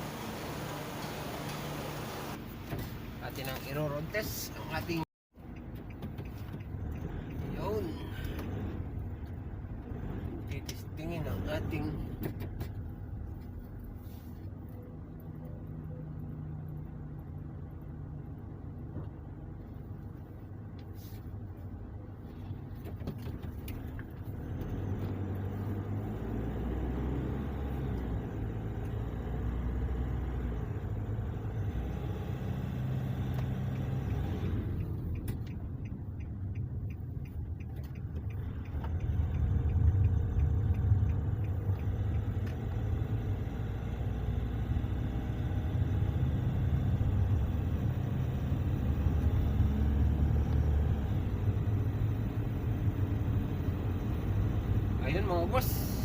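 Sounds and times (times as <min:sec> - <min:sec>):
car engine: 0:00.0 - 0:56.0
road noise: 0:00.0 - 0:56.0.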